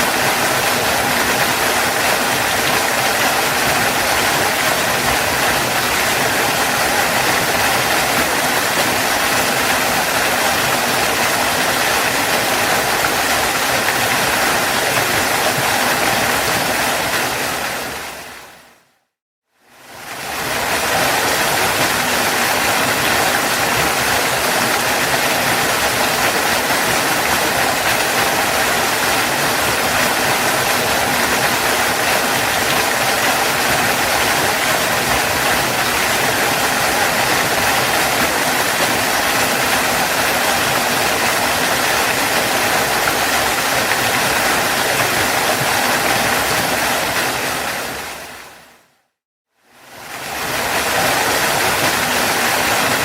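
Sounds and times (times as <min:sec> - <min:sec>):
waterfall rushing: 0:00.0 - 0:18.8, 0:19.8 - 0:48.8, 0:49.8 - 0:53.0.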